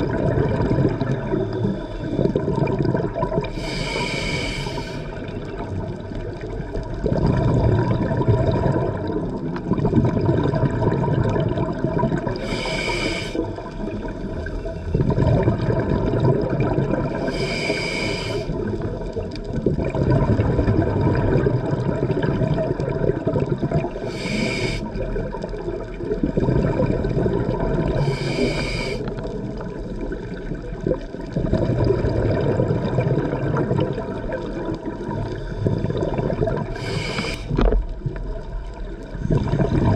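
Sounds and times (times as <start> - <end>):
bubbling exhale underwater: 0.0 - 39.9
regulator hissing inhales: 3.5 - 5.3, 12.4 - 13.6, 17.1 - 18.6, 24.0 - 25.0, 28.0 - 29.2, 36.7 - 37.7.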